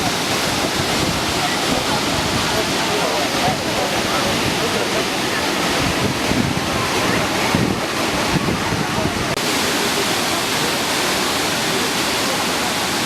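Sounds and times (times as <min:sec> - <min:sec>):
wind buffeting microphone: 0:00.0 - 0:09.4
waterfall roaring: 0:00.0 - 0:13.0.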